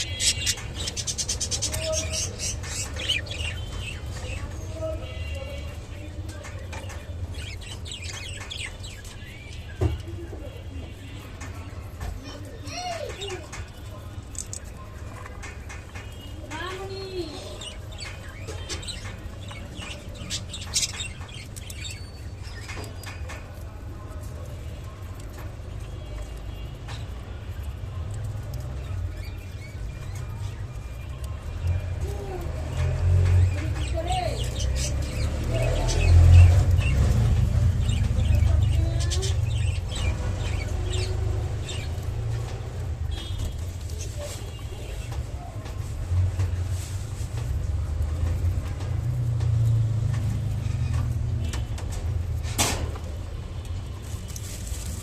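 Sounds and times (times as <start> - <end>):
budgerigars chirping: 0.0 - 4.1.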